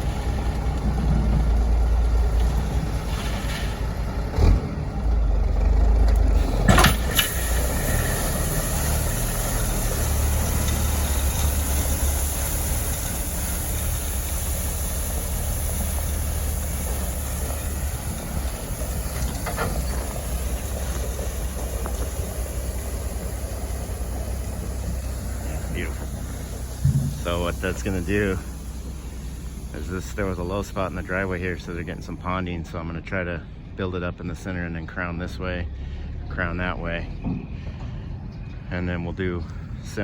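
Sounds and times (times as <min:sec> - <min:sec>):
gravel spreading: 0:00.0 - 0:33.5
truck engine low rumble: 0:00.0 - 0:40.0.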